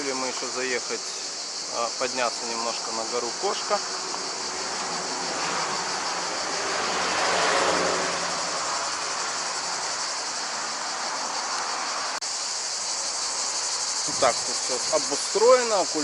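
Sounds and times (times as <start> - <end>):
insects chirping: 0.0 - 16.0
vehicle passing: 3.8 - 12.2.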